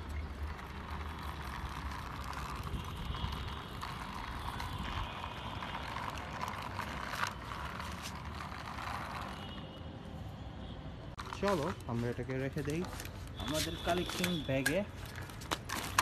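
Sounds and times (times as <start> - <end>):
plastic toy wheels rolling: 0.0 - 9.7, 11.2 - 16.0.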